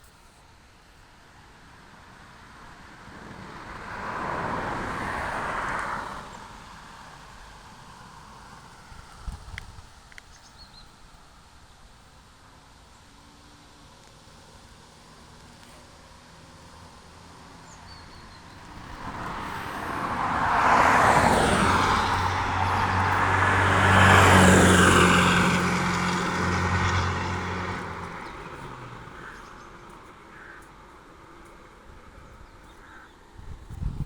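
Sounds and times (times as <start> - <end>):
vehicle passing by: 3.1 - 9.4, 15.3 - 30.8.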